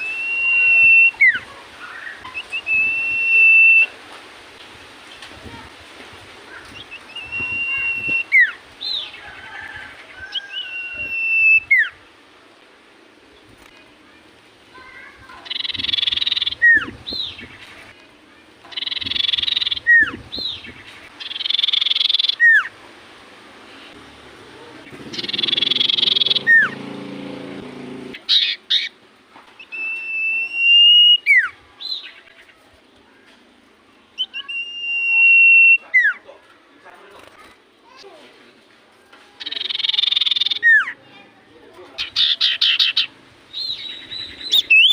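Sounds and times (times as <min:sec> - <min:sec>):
bird singing whistles: 0:00.0 - 0:01.4, 0:02.0 - 0:03.9, 0:06.8 - 0:08.6, 0:10.4 - 0:12.0, 0:25.1 - 0:26.8, 0:29.6 - 0:31.5, 0:34.2 - 0:36.2, 0:39.5 - 0:41.0, 0:43.6 - 0:44.9
bird chattering: 0:15.3 - 0:17.6, 0:18.7 - 0:22.7, 0:24.8 - 0:26.8, 0:28.1 - 0:29.0, 0:39.4 - 0:41.0, 0:42.0 - 0:44.9.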